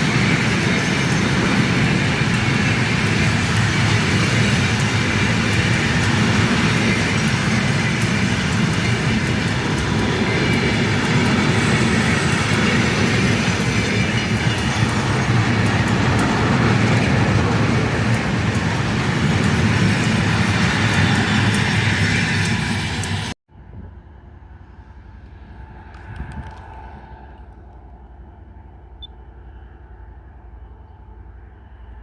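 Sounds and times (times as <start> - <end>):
train wheels rumbling on rails: 0.0 - 23.4.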